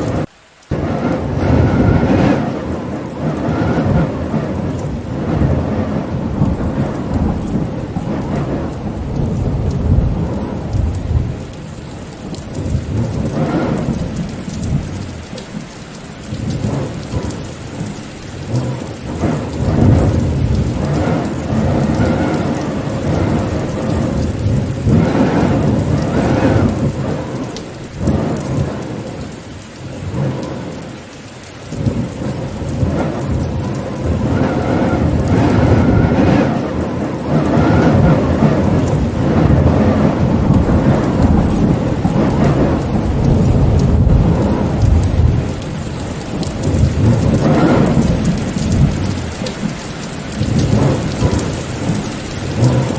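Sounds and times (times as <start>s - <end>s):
rumbling wind: 0.0s - 52.9s
steady rain: 0.0s - 52.9s.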